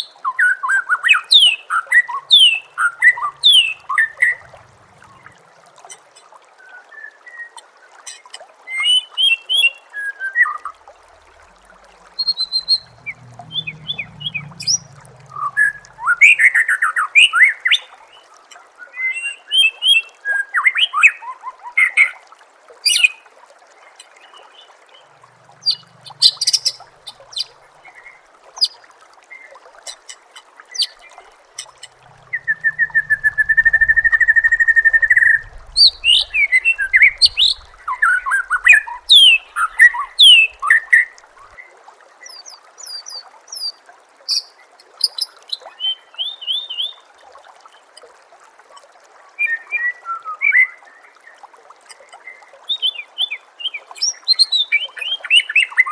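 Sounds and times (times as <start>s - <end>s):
trickle of running water: 0.0s - 55.9s
bird song with whistles and chirps: 6.6s - 7.6s, 12.2s - 17.9s, 32.3s - 41.1s, 42.2s - 44.4s, 49.4s - 50.8s, 52.2s - 55.9s.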